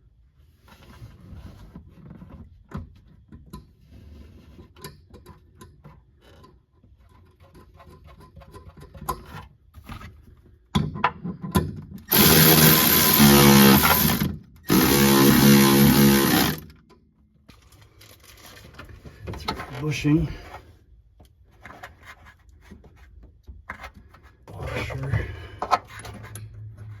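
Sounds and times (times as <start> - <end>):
power tool running: 12.1 - 16.7.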